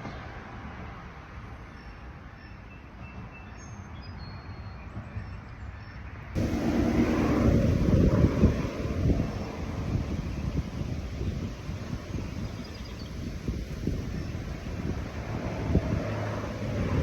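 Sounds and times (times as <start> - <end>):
soft breeze hiss: 6.4 - 17.0
wind buffeting microphone: 6.4 - 17.0.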